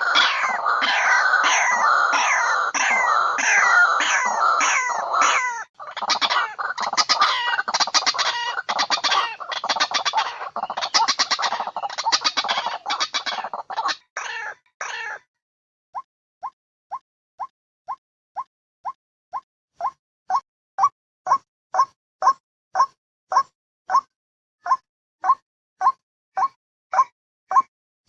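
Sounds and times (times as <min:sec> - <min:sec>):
waterhen harsh croaking call: 0:00.0 - 0:15.2.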